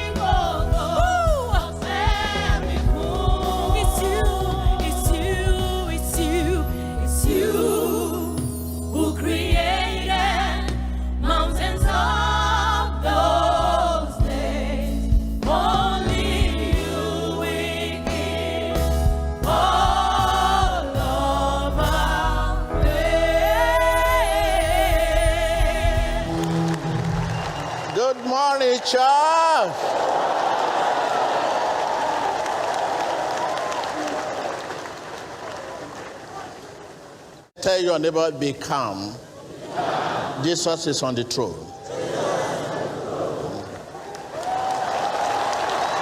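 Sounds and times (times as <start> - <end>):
steady bass: 0.0 - 7.8, 9.2 - 27.3
choir singing gospel song: 0.0 - 27.8, 39.5 - 44.0.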